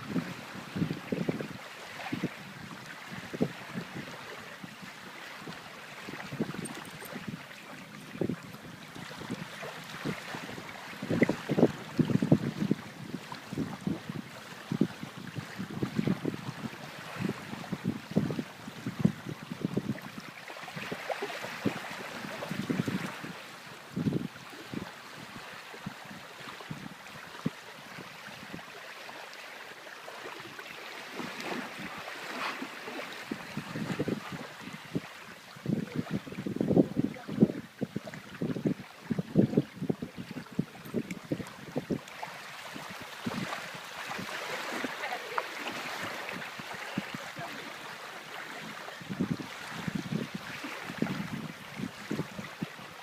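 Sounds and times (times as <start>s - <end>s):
rushing water: 0.0s - 53.0s
wind: 0.0s - 53.0s.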